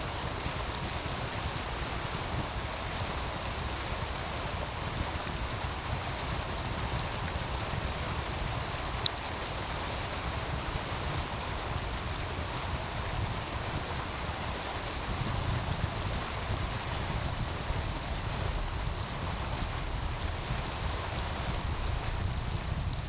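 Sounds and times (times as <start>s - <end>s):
wood fire crackling: 0.0s - 23.0s
low rumble: 17.2s - 23.0s.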